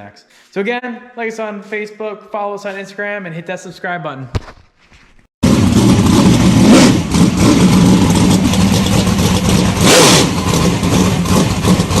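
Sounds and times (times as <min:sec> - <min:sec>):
race car engine running: 0:05.4 - 0:12.0.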